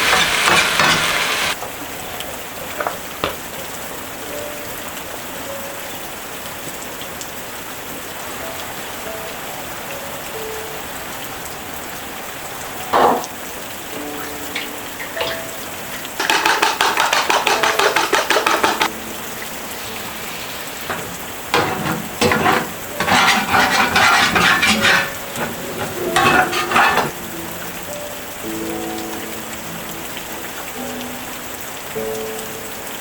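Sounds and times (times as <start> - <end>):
utensil scraping cooking pot: 0.0 - 1.6, 16.2 - 18.9, 19.7 - 27.1
steady rain: 0.0 - 33.0
sharp knock: 16.2 - 18.9.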